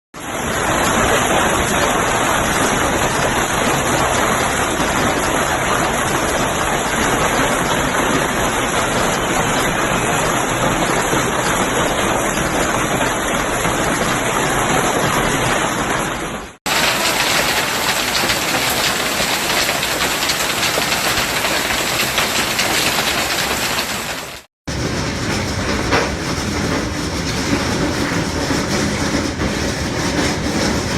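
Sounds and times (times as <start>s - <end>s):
heavy hail and rain falling: 0.3s - 24.8s.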